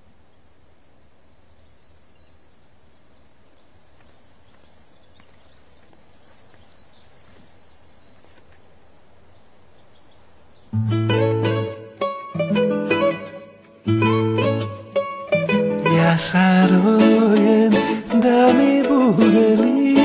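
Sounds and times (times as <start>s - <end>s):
faint background hiss: 0.0s - 20.0s.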